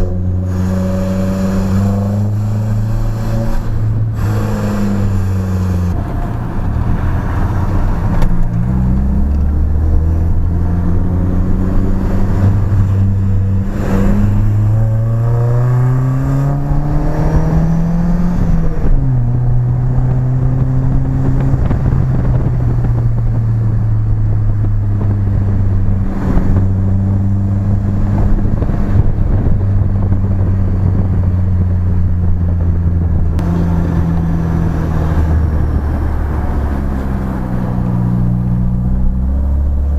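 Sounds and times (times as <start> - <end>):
car engine through exhaust: 0.0 - 39.9.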